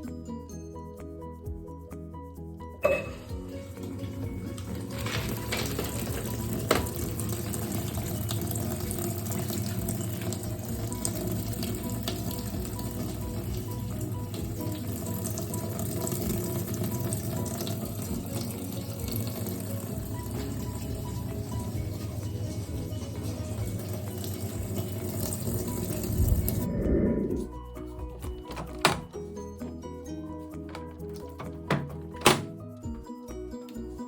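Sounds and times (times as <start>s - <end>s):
water filling washing machine: 2.8s - 27.2s, 28.3s - 29.2s, 30.7s - 32.6s.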